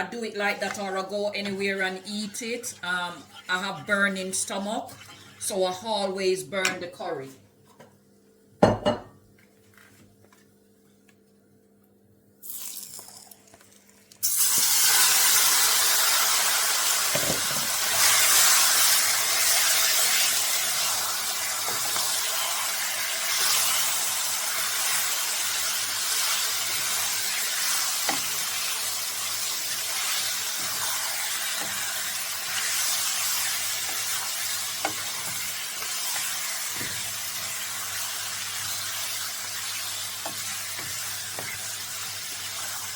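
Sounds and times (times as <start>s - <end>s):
loud sizzle in hot oil: 12.4s - 42.9s.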